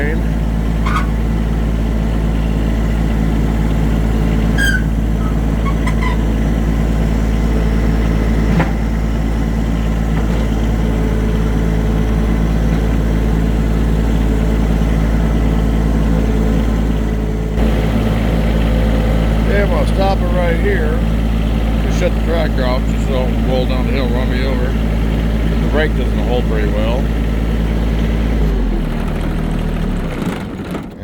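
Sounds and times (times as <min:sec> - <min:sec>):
tractor engine running: 0:00.0 - 0:31.0.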